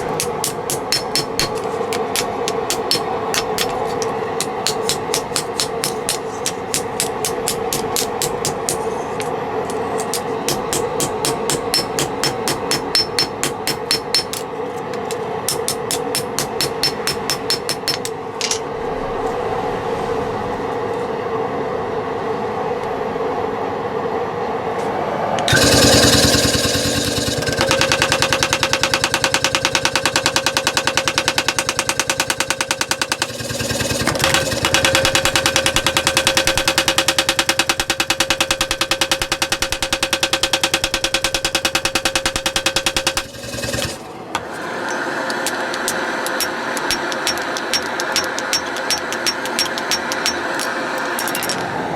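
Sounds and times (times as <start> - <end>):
sharp taps: 45.3 - 51.3.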